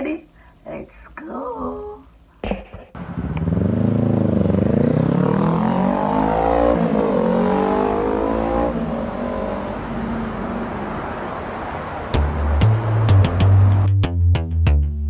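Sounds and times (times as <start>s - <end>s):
vehicle engine accelerating: 3.0s - 14.2s.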